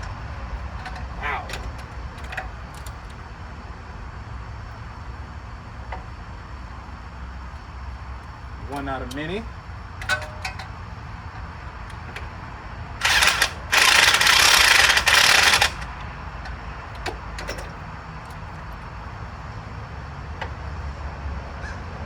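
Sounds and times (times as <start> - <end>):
power wrench running bolts: 0.0 - 3.2, 10.0 - 18.6.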